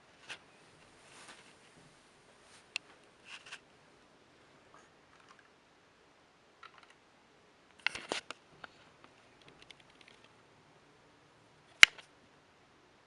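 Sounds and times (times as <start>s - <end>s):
faint clicks and taps: 7.7s - 10.4s.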